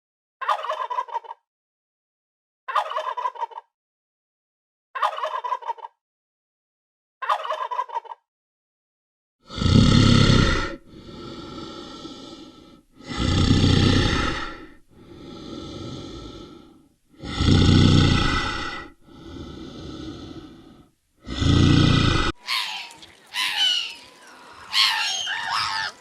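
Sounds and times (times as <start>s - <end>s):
heavy rasping breathing: 10.4s - 22.4s.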